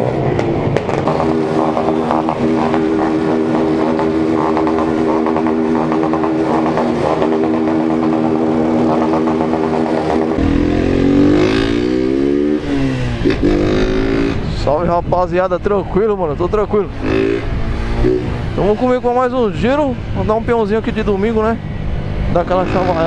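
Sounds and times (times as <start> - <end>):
motorcycle engine running: 0.0 - 14.7
engine notes gliding up and down: 0.0 - 23.0.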